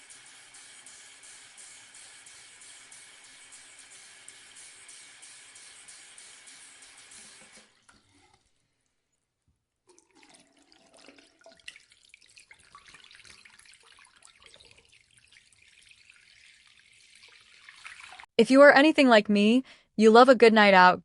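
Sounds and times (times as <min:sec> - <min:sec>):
faucet running into basin: 0:00.0 - 0:08.6, 0:09.9 - 0:18.3
water splashing and dripping: 0:09.9 - 0:18.3.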